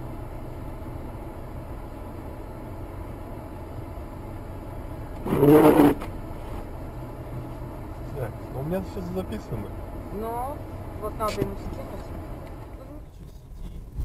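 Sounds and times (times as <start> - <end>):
car engine idling: 0.0 - 14.0
car horn blast: 5.2 - 6.1.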